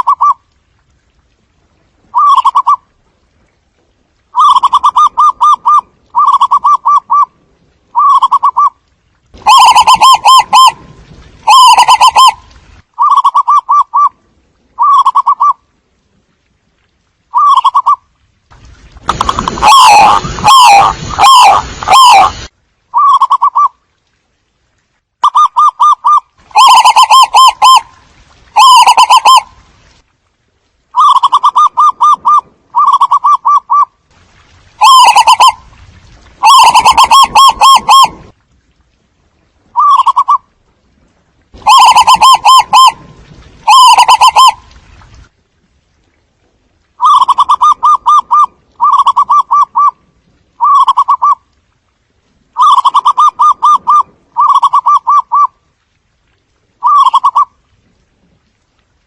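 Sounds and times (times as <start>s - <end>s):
doves cooing: 9.4s - 10.8s, 11.5s - 12.4s, 25.2s - 27.8s, 28.6s - 29.4s, 34.8s - 35.6s, 36.4s - 38.1s, 41.6s - 43.0s, 43.7s - 44.6s, 52.6s - 55.6s, 56.8s - 57.6s.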